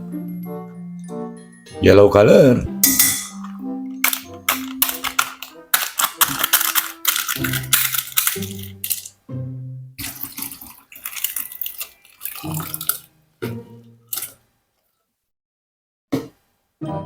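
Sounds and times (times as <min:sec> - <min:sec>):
tap water splashing in sink: 0:10.0 - 0:11.1.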